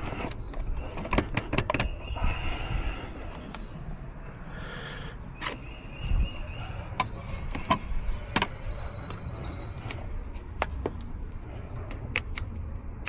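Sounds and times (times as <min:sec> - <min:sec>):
steady low rumble: 0:00.0 - 0:13.0
sharp clicks and knocks: 0:07.0 - 0:11.2, 0:11.8 - 0:12.7.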